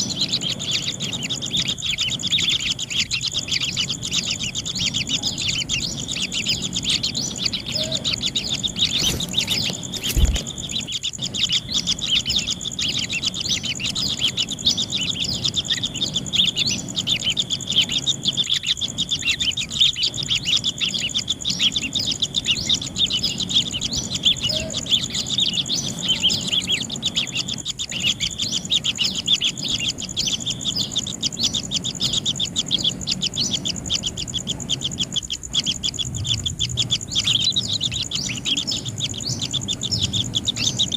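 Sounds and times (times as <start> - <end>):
nestlings chirping: 0.0 - 40.9
steady high whine: 0.0 - 40.9
sharp thump: 9.0 - 10.5.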